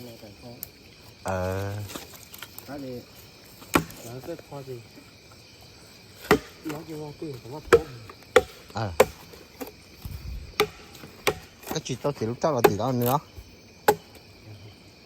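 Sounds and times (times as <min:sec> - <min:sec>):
blade chopping bamboo: 0:03.7 - 0:04.1, 0:06.2 - 0:06.8, 0:07.6 - 0:09.7, 0:10.6 - 0:11.9, 0:12.6 - 0:13.1, 0:13.9 - 0:14.2.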